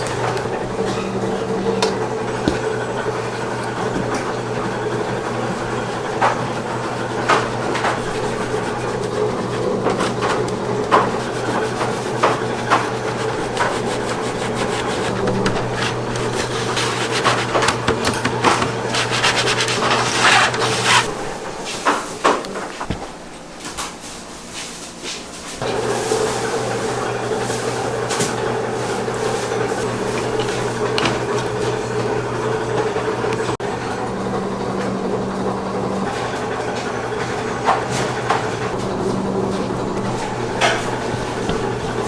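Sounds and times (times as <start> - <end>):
steady machine hum: 0.0 - 24.4, 25.6 - 42.0
rubbing and scraping: 5.1 - 22.9, 38.7 - 42.0.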